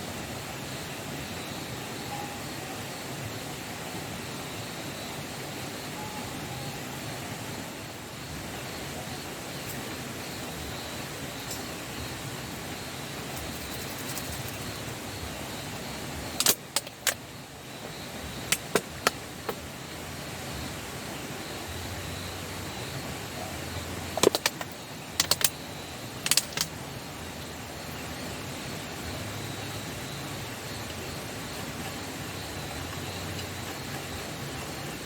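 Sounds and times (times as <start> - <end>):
sharp clicks and clinks: 24.2 - 25.6, 26.2 - 26.7.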